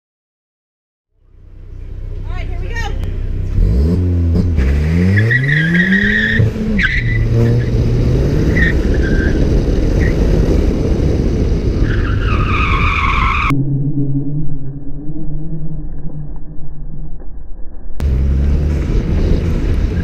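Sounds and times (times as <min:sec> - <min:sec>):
car engine accelerating hard: 0:01.2 - 0:13.5, 0:18.0 - 0:20.0.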